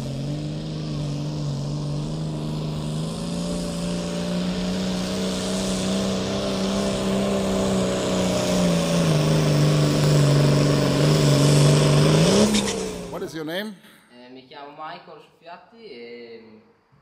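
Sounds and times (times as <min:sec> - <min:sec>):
tractor engine running under load: 0:00.0 - 0:13.2.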